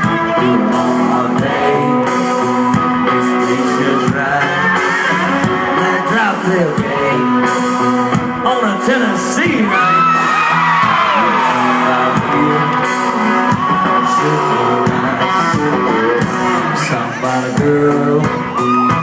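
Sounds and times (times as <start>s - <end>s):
live country-rock band playing: 0.0s - 19.0s
crowd whooping and yelling: 9.4s - 19.0s.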